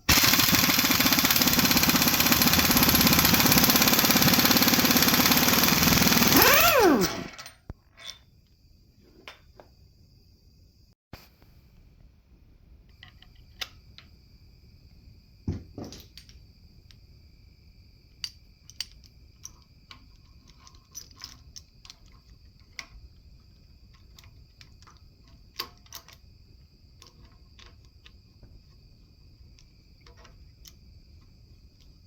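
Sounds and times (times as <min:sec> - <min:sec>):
cricket trill: 0:12.9 - 0:32.0.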